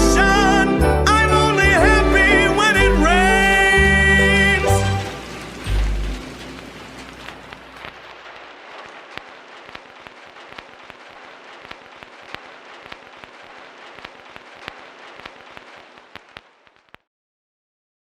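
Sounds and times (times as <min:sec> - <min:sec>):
rain hiss: 0:02.2 - 0:17.0
raindrops hitting hard surface: 0:03.6 - 0:17.0.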